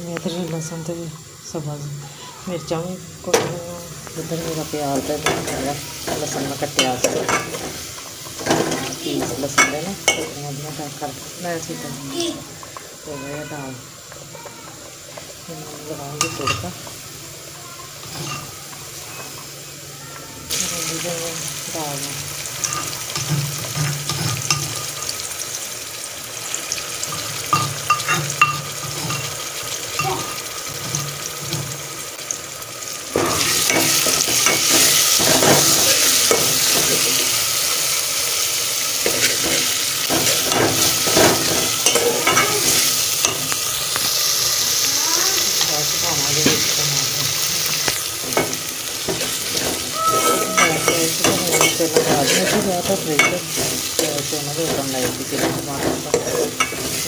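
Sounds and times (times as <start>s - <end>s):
vegetables sizzling in oil: 0.0s - 57.0s
spoon scraping against pot: 27.1s - 29.4s, 39.0s - 43.5s, 47.8s - 57.0s.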